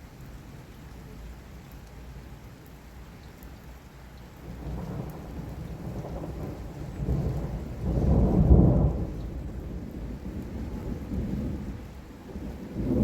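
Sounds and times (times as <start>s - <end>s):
heavy rain: 0.0s - 13.0s
rolling thunder: 4.5s - 13.0s.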